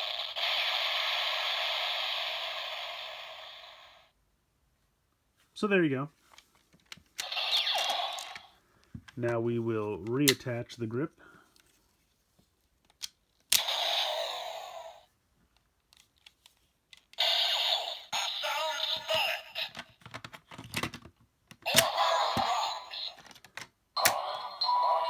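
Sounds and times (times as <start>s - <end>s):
toy electronic sound effects: 7.2s - 8.5s, 13.6s - 15.0s, 17.2s - 19.8s, 21.7s - 23.3s, 24.0s - 25.0s
toy voice lines: 7.2s - 8.5s, 13.6s - 15.1s, 17.2s - 20.0s, 21.7s - 23.3s, 24.0s - 25.0s
plastic clicks: 19.0s - 24.3s.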